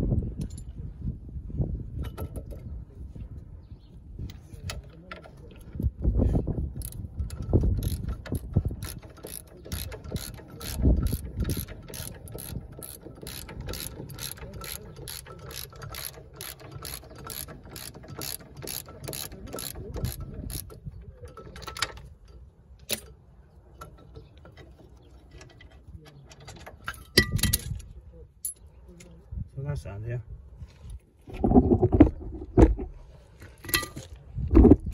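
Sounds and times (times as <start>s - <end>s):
socket wrench ratchet clicking: 6.8s - 22.0s.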